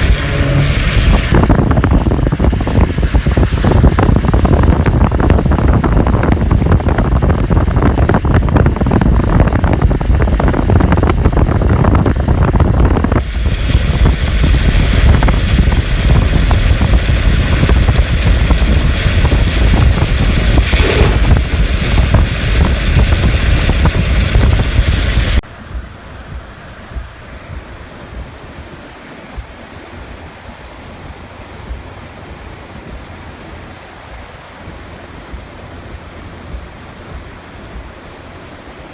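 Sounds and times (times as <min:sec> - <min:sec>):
river water rushing: 0:00.0 - 0:05.8, 0:25.5 - 0:38.9
wind buffeting microphone: 0:00.0 - 0:38.9.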